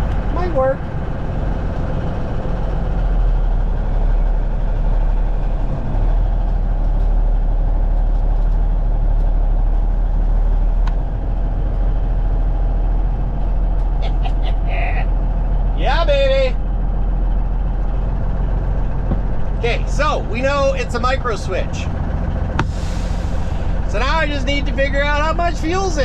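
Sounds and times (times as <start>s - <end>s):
diesel engine running hard: 0.0s - 26.0s
engine brake: 22.3s - 23.9s.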